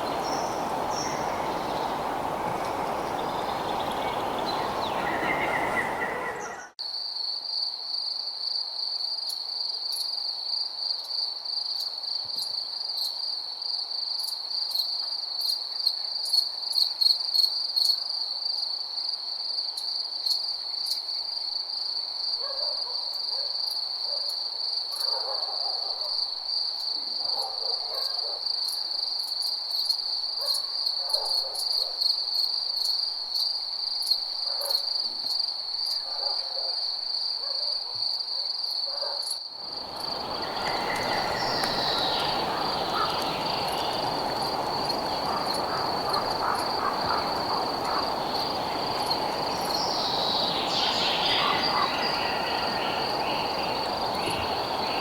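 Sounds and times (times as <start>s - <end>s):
dense night chorus: 0.0s - 6.8s, 39.6s - 55.0s
high-pitched cricket trill: 38.7s - 55.0s
low animal calls: 40.1s - 50.4s.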